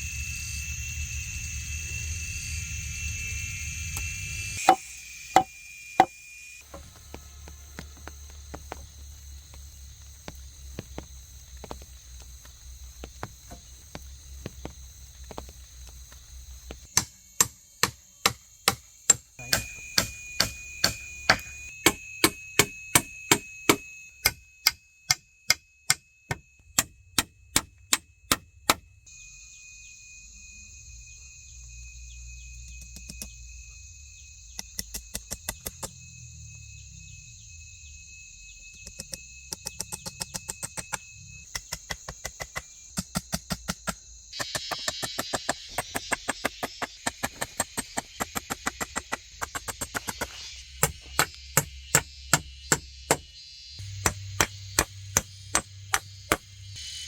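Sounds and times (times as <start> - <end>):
insects droning: 0.0 - 57.0
knife chopping bamboo: 4.6 - 5.5, 16.8 - 25.2, 38.9 - 56.5.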